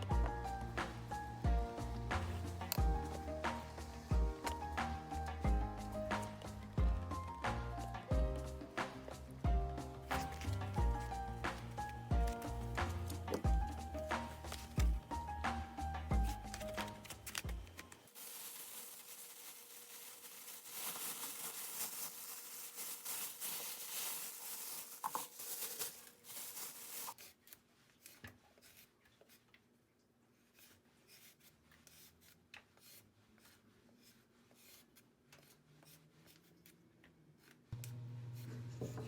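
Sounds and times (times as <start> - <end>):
rubbing and scraping handling noise: 0.8 - 29.8.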